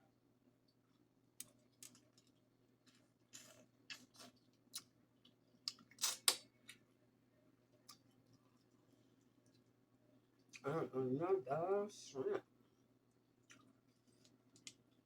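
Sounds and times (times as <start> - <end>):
wet chewing clicks and smacks: 3.9 - 6.8, 7.8 - 9.7, 13.1 - 15.0.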